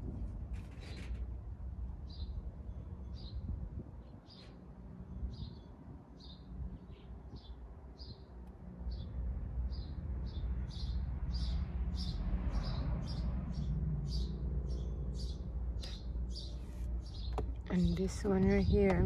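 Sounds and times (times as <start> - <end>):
bird chirping: 9.7 - 18.6.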